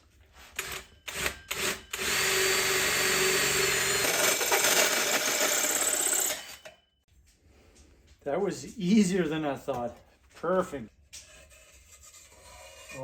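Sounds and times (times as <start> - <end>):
power drill boring: 0.6 - 6.7.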